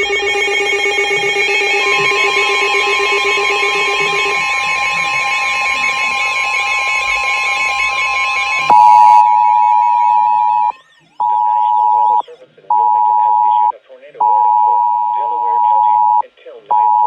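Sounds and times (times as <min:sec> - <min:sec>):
steady alert tone: 0:00.0 - 0:12.2
warbling emergency alert tones: 0:00.0 - 0:16.2.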